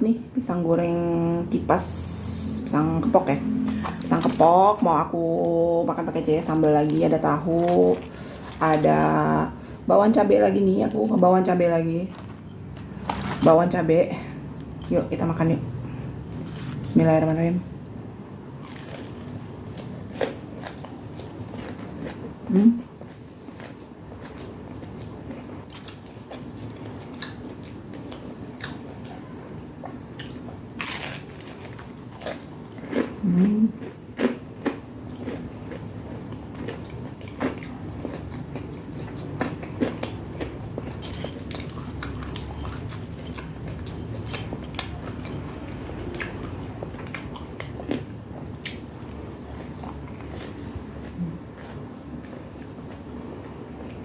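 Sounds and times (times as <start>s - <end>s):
crisp bites and chewing: 18.6s - 22.2s, 30.2s - 33.2s, 33.8s - 52.4s
person humming: 22.5s - 22.8s.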